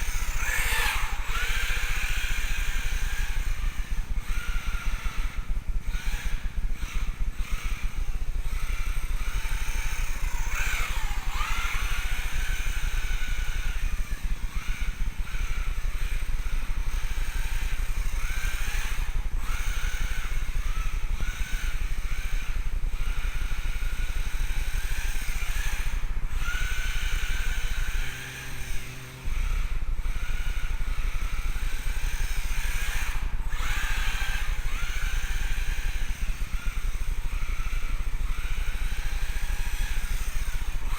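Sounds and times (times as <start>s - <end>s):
toy car electric motor whining: 0.0s - 40.9s.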